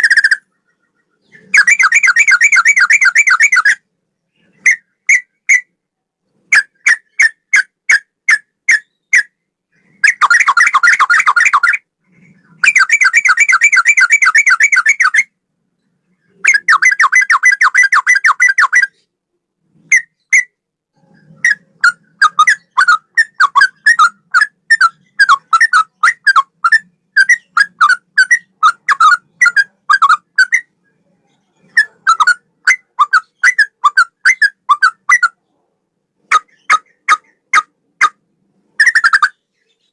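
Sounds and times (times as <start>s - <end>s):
bird chattering trills: 0.0s - 3.8s, 16.2s - 19.0s, 21.1s - 35.4s, 36.3s - 38.2s
bird whistled notes: 1.2s - 3.8s, 12.6s - 15.3s, 16.4s - 19.0s.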